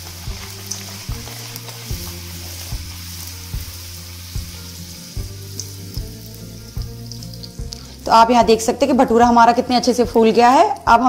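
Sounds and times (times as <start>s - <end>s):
deep-frying sizzle: 0.0s - 11.0s
soft background music: 0.0s - 11.0s.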